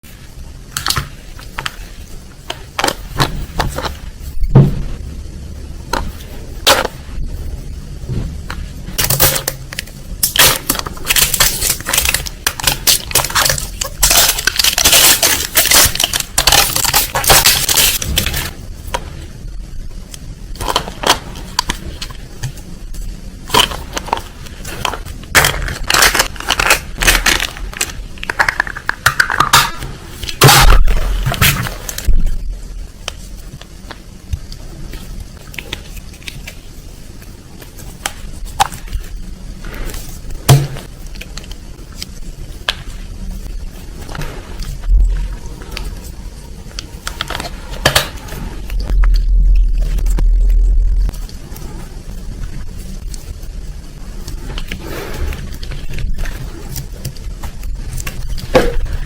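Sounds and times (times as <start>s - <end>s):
hard shells cracking and crunching: 9.0s - 18.5s, 23.5s - 32.1s.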